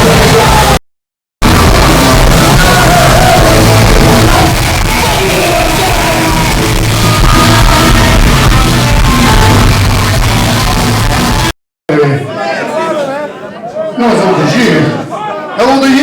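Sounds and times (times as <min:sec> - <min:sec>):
live punk band playing: 0:00.0 - 0:00.8, 0:01.4 - 0:11.5
shouted vocals: 0:00.0 - 0:00.8, 0:01.4 - 0:16.0.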